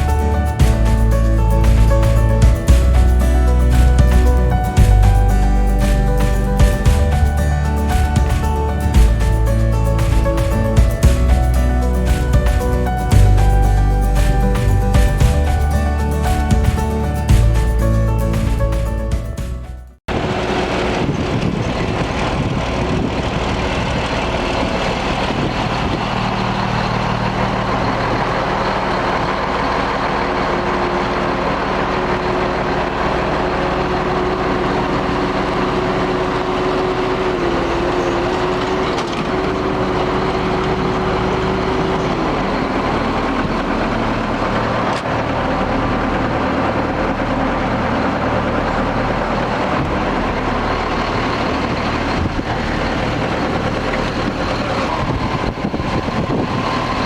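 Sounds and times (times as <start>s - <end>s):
high whine: 0.0s - 36.4s
loader engine running: 0.0s - 57.0s.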